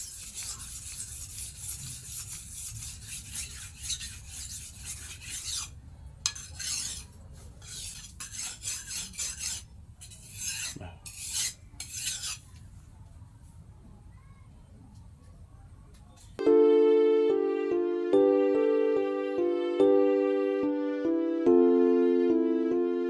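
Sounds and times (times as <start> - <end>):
knife scraping on abrasive: 0.0 - 12.5.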